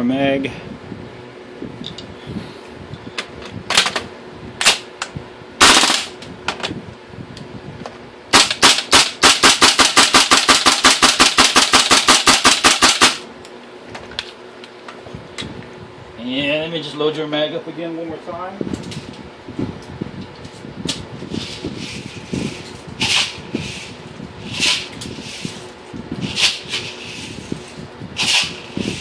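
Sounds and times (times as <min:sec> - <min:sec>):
airsoft rifle firing: 0:05.6 - 0:06.1, 0:08.3 - 0:13.2.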